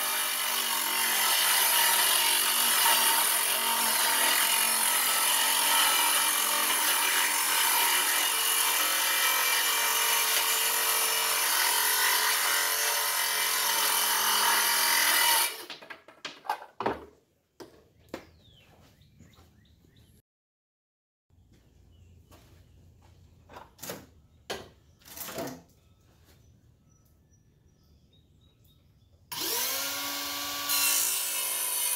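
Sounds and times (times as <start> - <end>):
circular saw cutting wood: 0.0 - 15.7, 29.3 - 31.9
knocks and clatters: 15.6 - 18.4.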